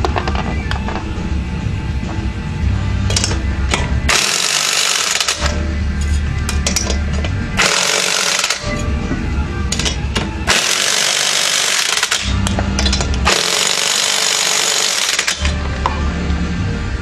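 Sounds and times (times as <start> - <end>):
steady low hum: 0.0 - 17.0
pneumatic impact wrench: 4.1 - 5.6, 7.6 - 8.7, 10.5 - 15.5.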